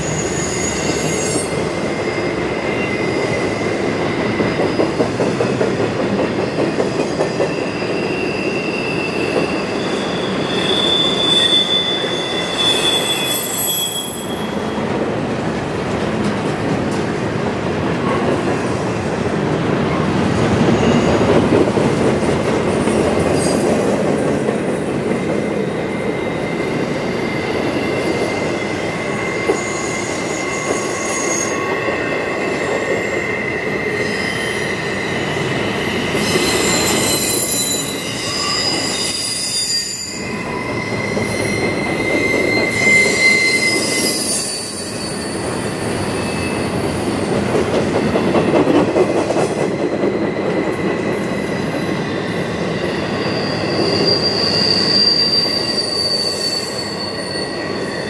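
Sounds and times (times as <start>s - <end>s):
high-pitched wheel squeals: 0.0s - 5.2s, 7.0s - 14.8s, 25.8s - 47.1s, 51.5s - 58.0s
freight train wheels clattering: 46.7s - 51.4s.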